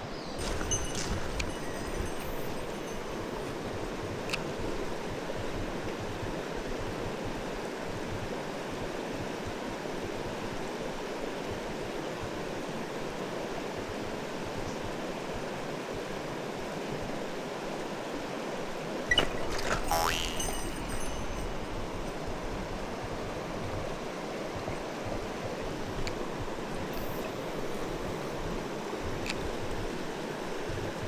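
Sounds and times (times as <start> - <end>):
stream flowing over stones: 18.7 - 25.0.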